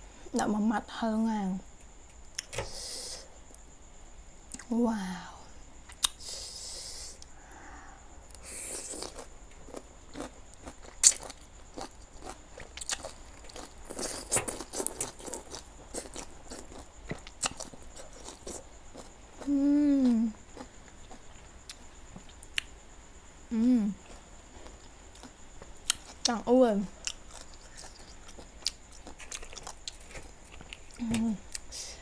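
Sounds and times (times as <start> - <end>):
chewing and crunching greens: 8.7 - 22.7, 24.0 - 31.7
person humming mm: 19.4 - 20.4, 23.5 - 24.0.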